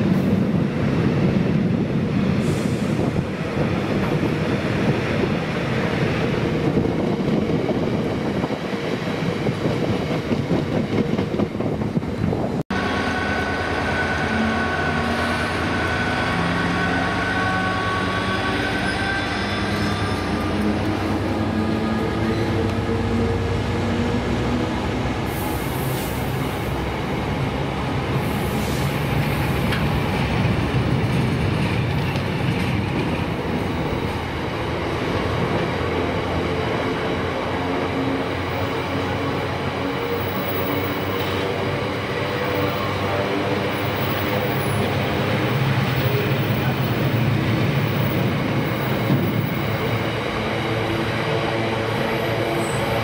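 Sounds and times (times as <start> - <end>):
freight train wheels on rail: 0.0 - 53.0.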